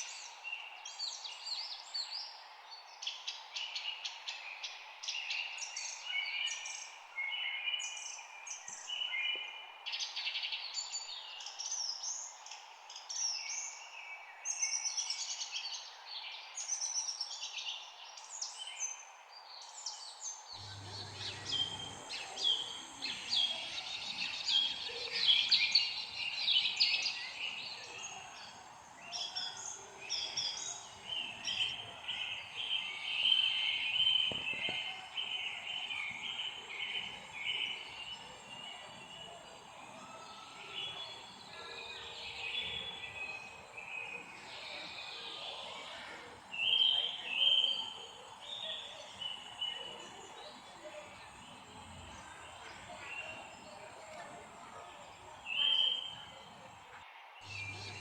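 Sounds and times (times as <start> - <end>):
songbirds chirping and trilling: 19.6 - 58.0
background hiss: 20.4 - 58.0.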